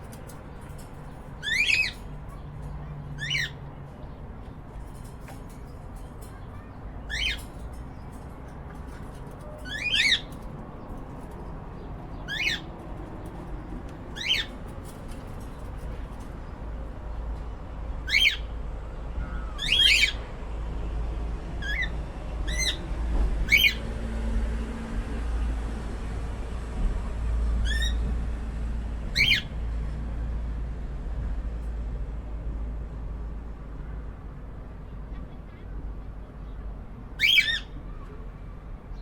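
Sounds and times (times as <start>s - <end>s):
cockatiels squawking: 1.4s - 3.6s, 7.1s - 7.6s, 9.4s - 10.4s, 12.2s - 12.7s, 14.2s - 14.6s, 27.6s - 28.0s, 29.2s - 29.5s, 37.2s - 37.8s.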